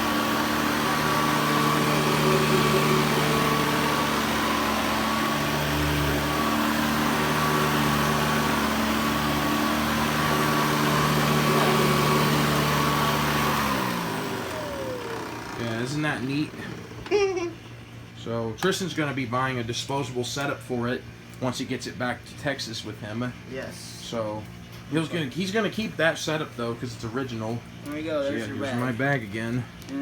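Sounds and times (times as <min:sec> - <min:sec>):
vacuum cleaner running: 0:00.0 - 0:17.6.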